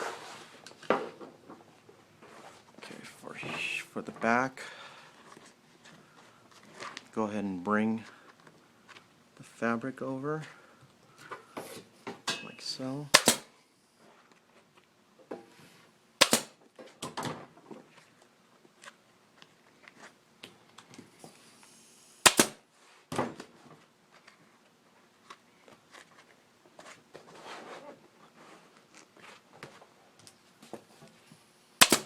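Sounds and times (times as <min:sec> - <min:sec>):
staple gun snapping: 0:13.2 - 0:13.5, 0:16.2 - 0:16.5, 0:22.2 - 0:22.6.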